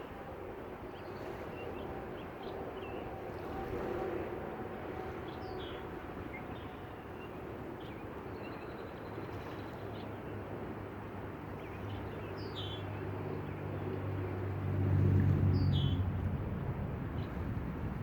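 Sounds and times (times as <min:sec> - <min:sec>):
low engine hum: 0:09.7 - 0:18.0.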